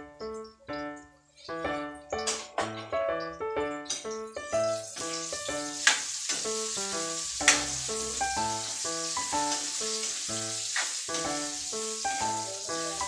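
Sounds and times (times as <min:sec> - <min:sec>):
background music: 0:00.0 - 0:13.0
food sizzling in a wok: 0:04.1 - 0:13.0.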